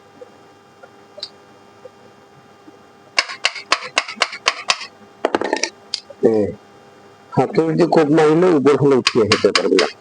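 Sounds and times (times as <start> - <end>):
faint steady hum: 0.0 - 10.0
sharp knocks on metal core: 3.2 - 5.6, 9.0 - 10.0.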